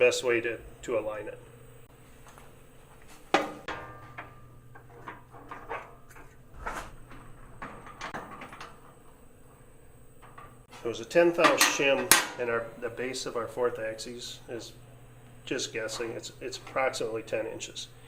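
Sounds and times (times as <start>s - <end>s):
low steady hum: 0.0s - 18.0s
metal tools clinking: 11.4s - 13.1s.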